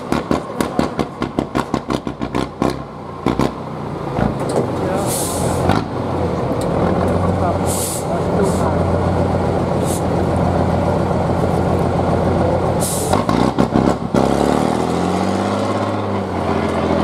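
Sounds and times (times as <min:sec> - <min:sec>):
diesel truck engine revving: 0:00.0 - 0:17.0
air brakes hissing: 0:05.0 - 0:05.6, 0:07.6 - 0:08.7, 0:09.8 - 0:10.2, 0:12.8 - 0:13.2.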